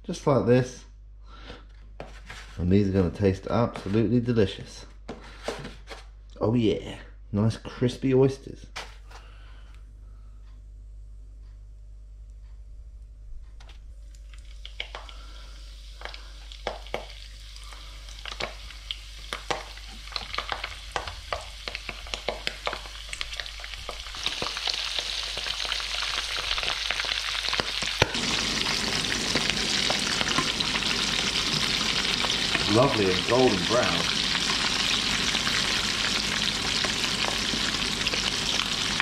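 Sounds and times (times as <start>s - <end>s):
oysters frying in hot oil: 14.2s - 39.0s.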